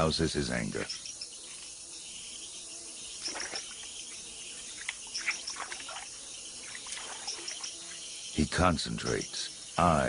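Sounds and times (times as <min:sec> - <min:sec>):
insects chirping: 0:00.0 - 0:10.0
splashes in shallow water: 0:03.2 - 0:03.8, 0:05.2 - 0:06.1, 0:06.7 - 0:07.7.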